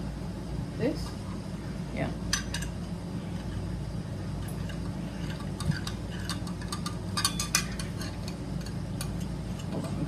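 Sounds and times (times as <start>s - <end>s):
steady low hum: 0.0s - 10.0s
metal parts clicking and clinking: 2.3s - 2.8s, 4.4s - 10.0s.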